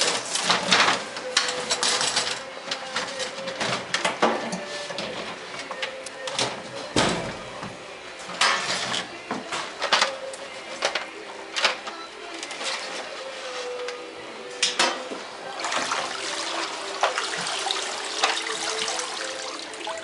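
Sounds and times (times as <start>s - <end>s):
water splashing in steel sink: 15.6s - 20.0s.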